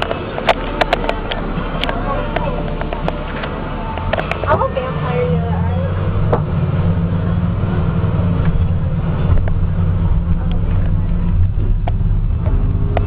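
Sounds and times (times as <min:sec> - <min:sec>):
diesel bus engine idling: 0:00.0 - 0:13.0.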